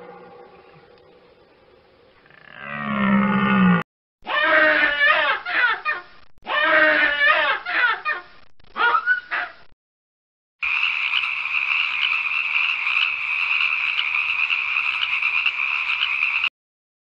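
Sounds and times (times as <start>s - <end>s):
frogs trilling: 10.6s - 16.5s.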